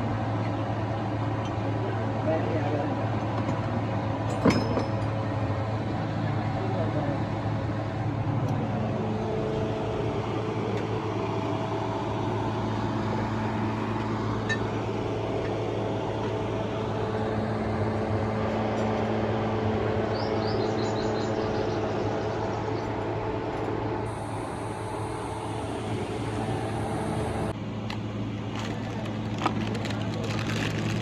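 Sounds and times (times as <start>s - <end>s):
motor humming: 24.1s - 31.0s.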